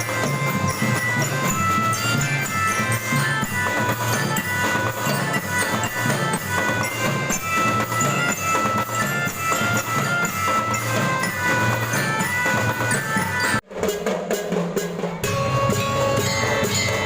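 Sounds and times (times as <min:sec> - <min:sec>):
bright held melody line: 0:00.0 - 0:13.6
drum and bass drum beat: 0:00.0 - 0:17.0.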